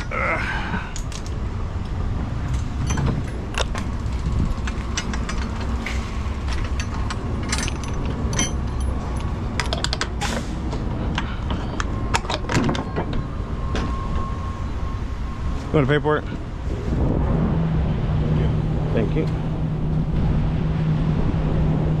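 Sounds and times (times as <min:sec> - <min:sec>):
clicks and rattles of handling: 0:02.5 - 0:10.3.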